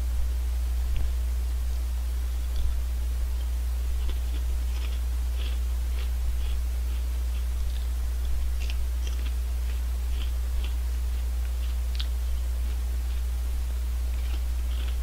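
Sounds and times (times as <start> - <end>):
steady low hum: 0.0 - 15.0
crunchy chips being chewed: 3.4 - 15.0.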